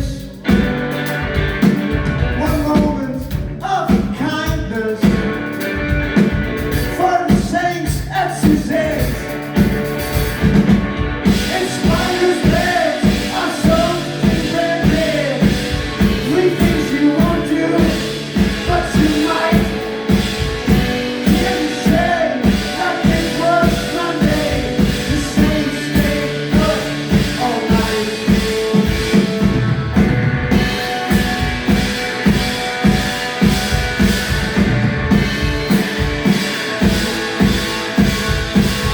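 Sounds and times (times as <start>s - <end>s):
driving drum beat: 0.0s - 38.9s
live blues-punk music: 0.0s - 38.9s
person singing: 11.3s - 28.9s.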